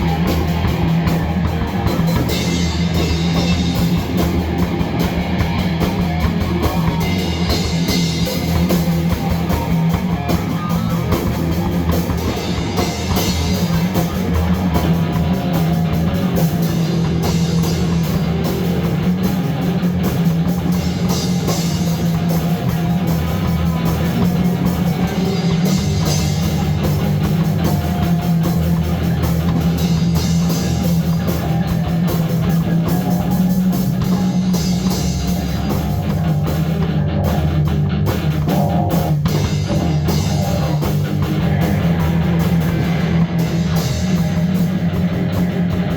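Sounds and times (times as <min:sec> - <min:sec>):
loud rock music: 0:00.0 - 0:45.9.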